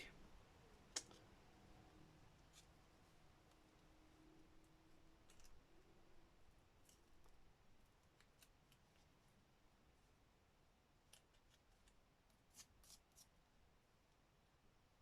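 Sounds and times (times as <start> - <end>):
scissors snipping paper: 5.2 - 5.6, 8.0 - 9.1, 11.1 - 13.3.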